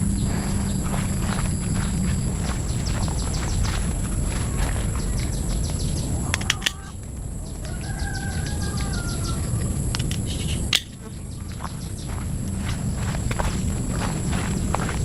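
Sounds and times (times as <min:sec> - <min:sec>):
steady footsteps: 0:00.0 - 0:10.2, 0:11.1 - 0:15.0
high insect-like whine: 0:00.0 - 0:15.0
bird call: 0:01.8 - 0:12.2
sharp clicks: 0:05.2 - 0:11.0.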